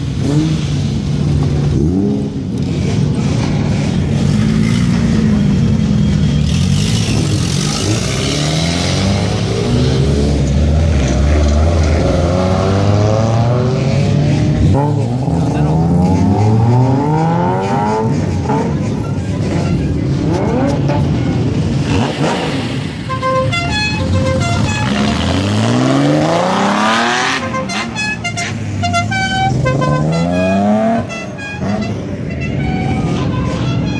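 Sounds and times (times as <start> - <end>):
car engines revving: 0.0 - 33.9
musical car horn: 23.0 - 25.8, 26.9 - 33.9.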